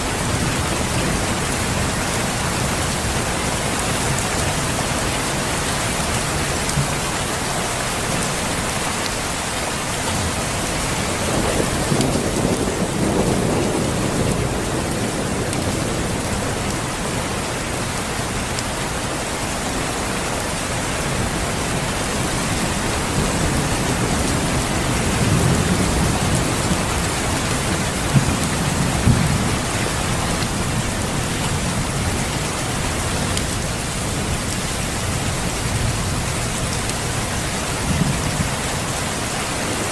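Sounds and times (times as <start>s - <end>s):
steady rain falling: 0.0s - 39.9s
low thunder rumbling: 10.3s - 17.9s, 21.1s - 39.0s.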